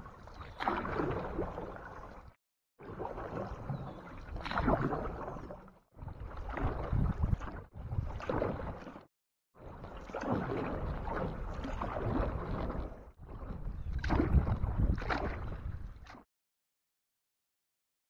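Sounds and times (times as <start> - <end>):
water around canoe hull and paddle: 0.0 - 16.3
wind buffeting microphone: 13.5 - 15.8.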